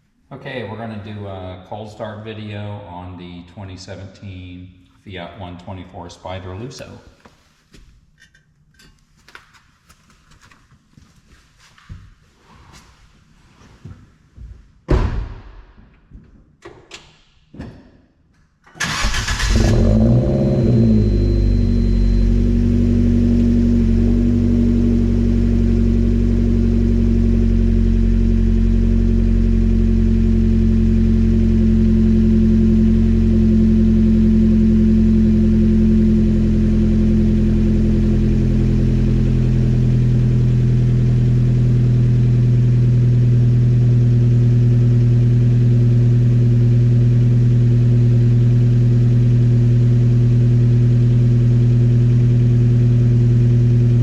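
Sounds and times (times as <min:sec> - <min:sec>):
car engine cranking and starting: 0:18.7 - 0:30.4
car engine idling: 0:18.8 - 0:54.0.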